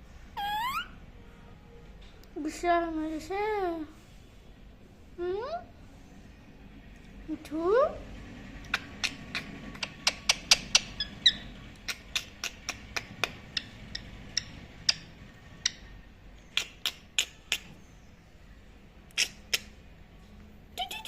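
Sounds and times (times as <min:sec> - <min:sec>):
high chirp: 0:00.4 - 0:01.0.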